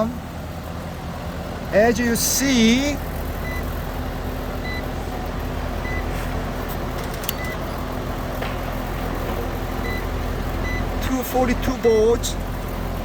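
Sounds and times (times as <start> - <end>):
air conditioning unit humming: 0.0 - 13.0.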